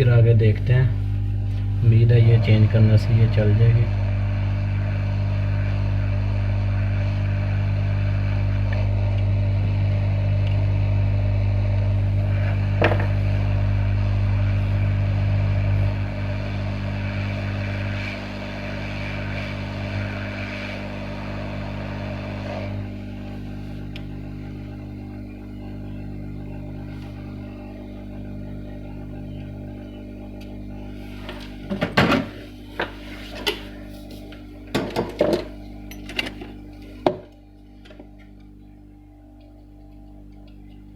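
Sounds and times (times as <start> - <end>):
deep mains hum: 0.0 - 40.9
hot-air gun blowing: 1.4 - 25.5.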